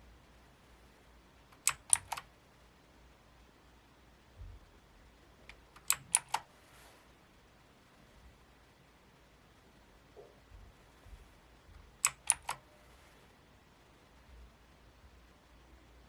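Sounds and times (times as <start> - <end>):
mechanical keyboard key clicks: 1.6 - 2.3, 5.8 - 6.4, 12.0 - 12.6.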